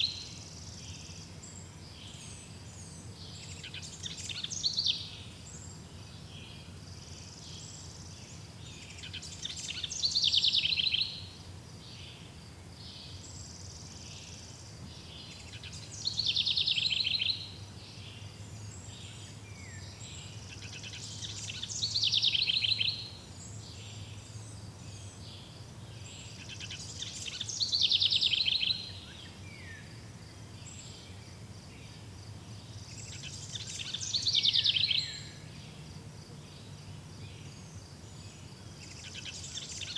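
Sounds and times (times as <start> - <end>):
faint bird chirps: 0.0 - 35.8, 36.5 - 39.9
songbird song with falling trill: 0.0 - 39.9.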